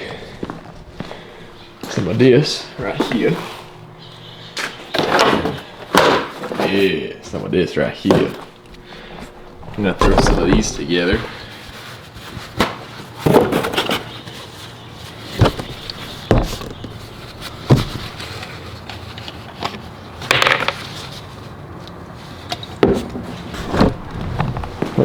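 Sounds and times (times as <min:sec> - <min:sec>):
objects knocking and clunking: 0:04.6 - 0:11.6, 0:15.3 - 0:18.5.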